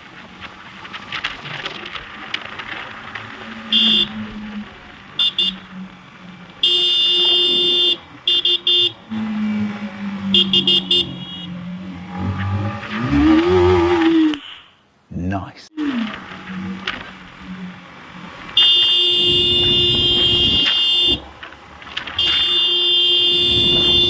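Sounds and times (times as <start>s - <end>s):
vehicle horn honking: 3.7s - 4.2s, 5.2s - 5.7s, 6.6s - 9.2s, 10.3s - 11.6s, 18.6s - 21.3s, 22.2s - 24.0s.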